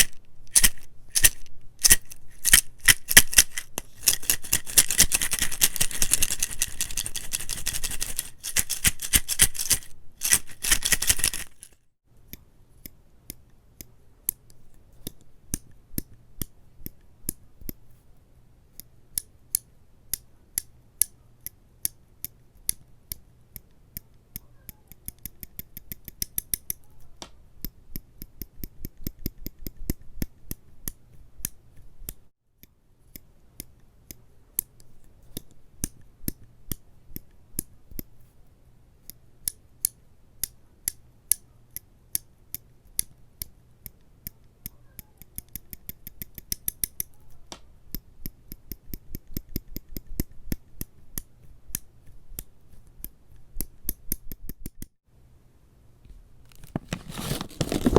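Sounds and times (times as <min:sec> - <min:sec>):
sharp crisp clicks and snips: 0:18.8 - 0:38.1, 0:39.0 - 0:55.0.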